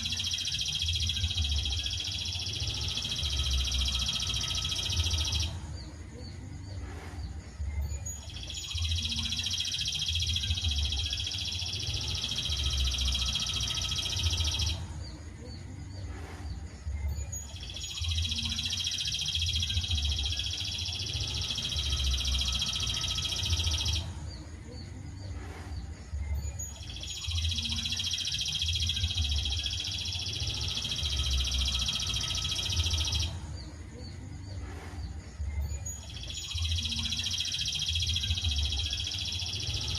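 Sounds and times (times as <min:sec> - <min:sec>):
songbird singing high trills: 0:17.2 - 0:24.1, 0:26.4 - 0:33.4, 0:35.8 - 0:39.9.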